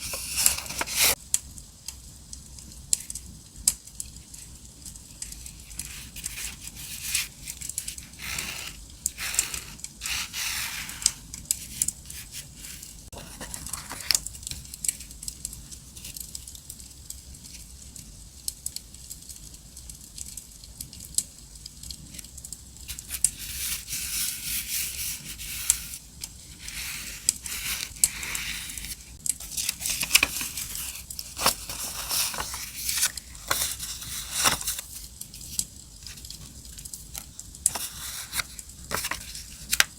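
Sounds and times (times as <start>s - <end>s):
paper rustling and tearing: 0.0s - 1.2s, 5.3s - 15.2s, 22.9s - 36.6s, 37.7s - 39.9s.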